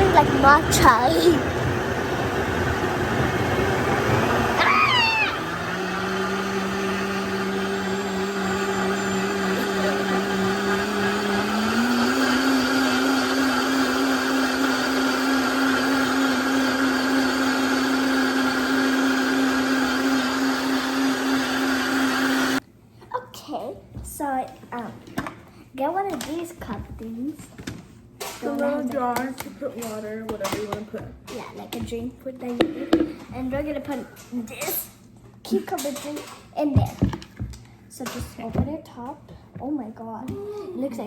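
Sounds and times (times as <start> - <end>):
blender motor running: 0.0 - 22.6.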